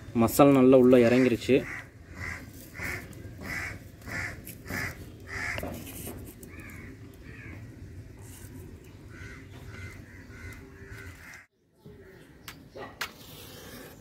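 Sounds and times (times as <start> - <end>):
bird calling: 8.8 - 12.6.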